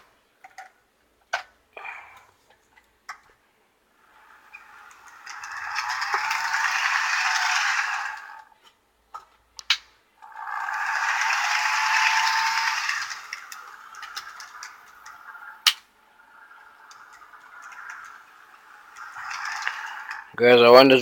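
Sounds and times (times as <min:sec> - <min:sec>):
model train rattling on track: 0:04.1 - 0:08.5, 0:10.2 - 0:21.0.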